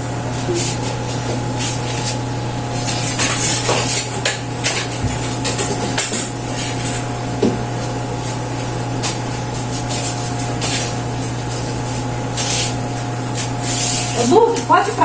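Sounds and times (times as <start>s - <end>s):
low electrical hum: 0.0s - 15.0s
cloth scrubbing and wiping: 6.4s - 14.4s.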